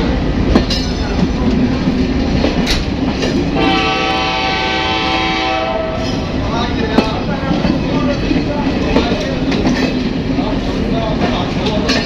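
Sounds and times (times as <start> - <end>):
diesel locomotive rumble: 0.0 - 12.0
railway coach clanks: 0.0 - 12.0
train horn blast: 3.6 - 6.2.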